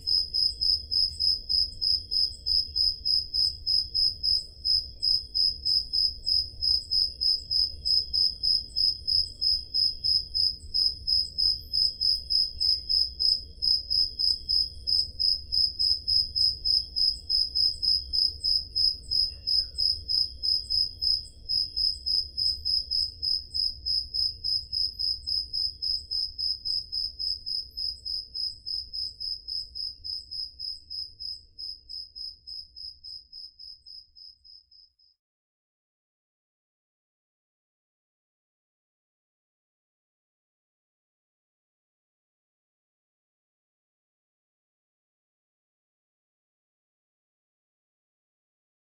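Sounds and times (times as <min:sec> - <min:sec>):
cricket chirping: 0:00.0 - 0:35.2
faint crickets: 0:00.0 - 0:35.2.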